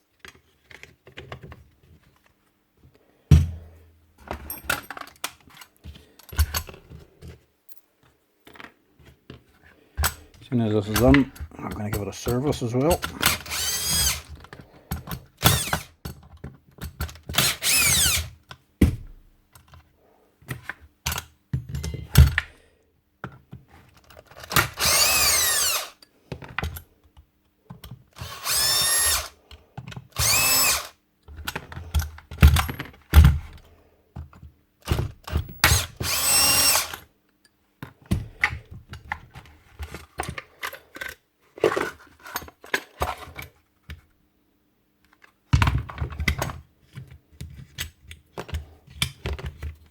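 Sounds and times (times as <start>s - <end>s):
cordless drill whirring: 13.2s - 14.3s, 15.4s - 15.9s, 17.3s - 18.4s, 24.6s - 26.0s, 28.2s - 29.4s, 30.2s - 31.0s, 35.5s - 37.0s.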